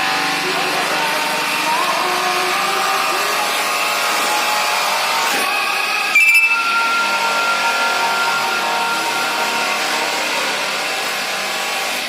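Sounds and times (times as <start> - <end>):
electric polishing tool whining: 0.0 - 12.0.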